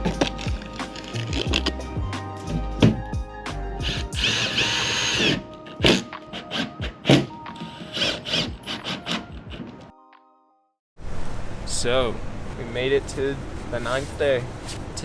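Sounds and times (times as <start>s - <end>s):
background music: 0.0s - 10.7s
power drill whining: 4.1s - 5.6s.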